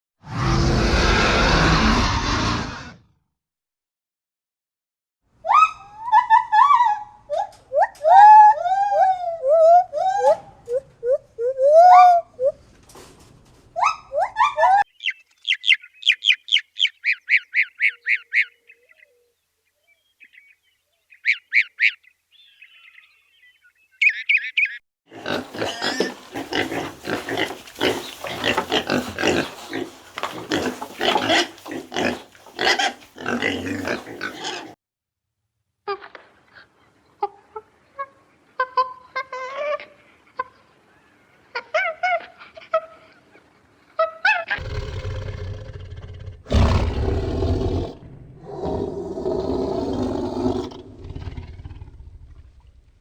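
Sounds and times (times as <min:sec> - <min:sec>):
farm animal calls: 0:24.0 - 0:34.8
rapid pig calls: 0:25.1 - 0:34.8.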